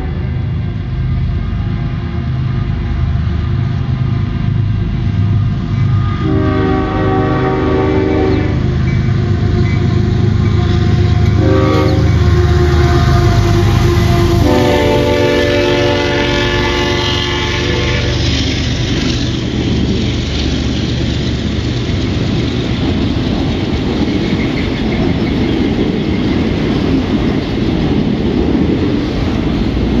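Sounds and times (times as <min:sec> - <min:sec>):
locomotive horn: 0:00.0 - 0:00.4, 0:05.8 - 0:18.4
train rumble and wheel clatter: 0:00.0 - 0:30.0.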